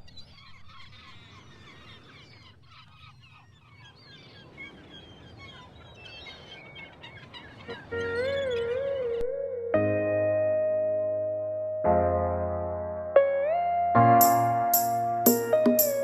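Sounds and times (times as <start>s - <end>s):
flock of birds calling: 0.0s - 9.0s.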